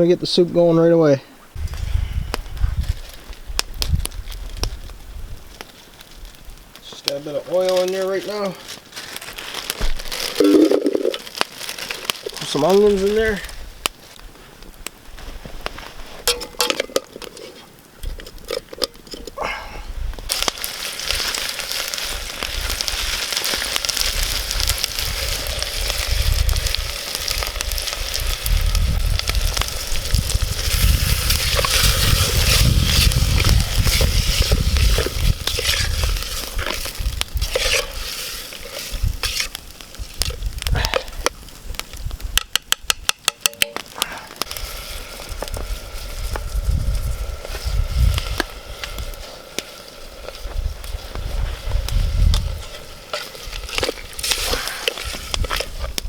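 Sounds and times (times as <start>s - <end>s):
onions sizzling in oil: 7.9s - 13.7s, 20.1s - 56.0s.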